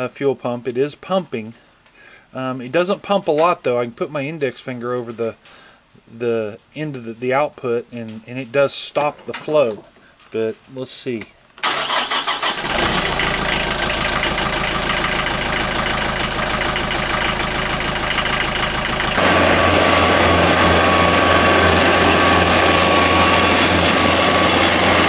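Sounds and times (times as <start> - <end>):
diesel tractor engine running: 11.6 - 25.0.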